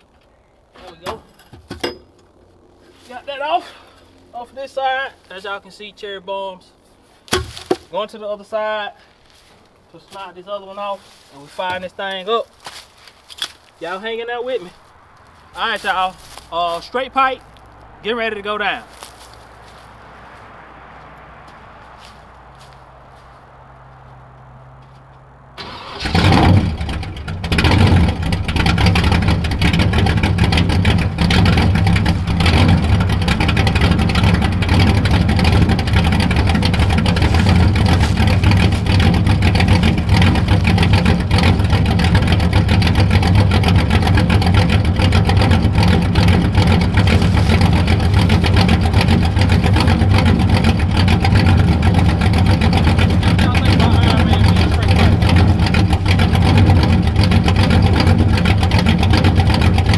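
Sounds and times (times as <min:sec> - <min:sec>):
engine cranking: 0:24.3 - 0:59.9
loud v-eight engine idling: 0:25.5 - 0:59.9.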